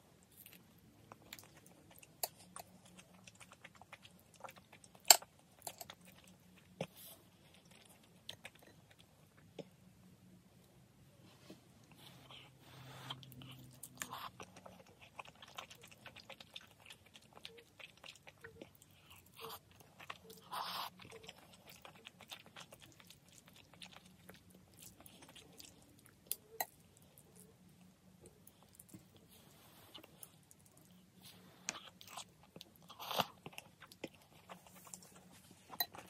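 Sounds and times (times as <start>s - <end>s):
person chewing: 11.9s - 36.0s.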